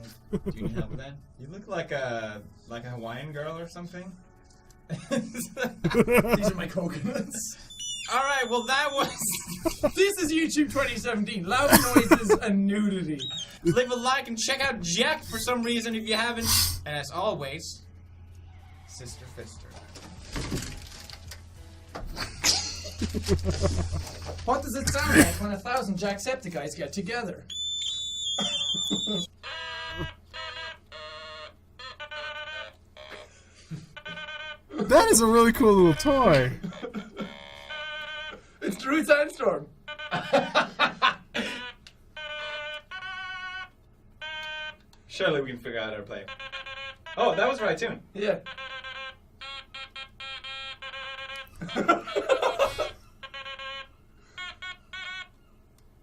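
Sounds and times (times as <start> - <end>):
people laughing: 0.0 - 1.2, 4.9 - 7.6, 9.0 - 10.1, 11.5 - 12.5, 13.6 - 13.9, 22.1 - 24.3, 28.4 - 29.3, 40.2 - 41.6, 51.6 - 53.0
shrill electronic toy beep: 7.6 - 9.3, 13.2 - 13.6, 27.5 - 32.7, 34.2 - 36.5, 53.0 - 55.7
voices: 34.8 - 36.6.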